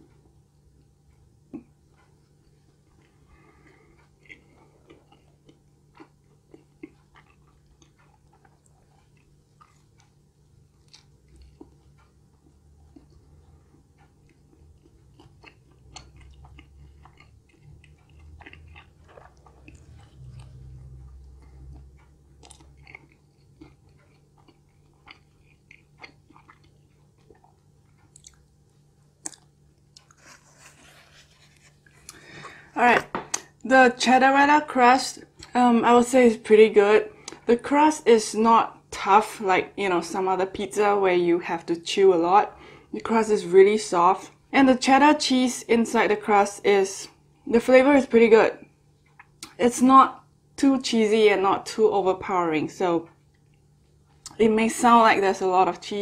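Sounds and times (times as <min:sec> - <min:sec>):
chewing pizza crust: 0:00.0 - 0:36.2, 0:48.6 - 0:50.3, 0:53.0 - 0:54.6.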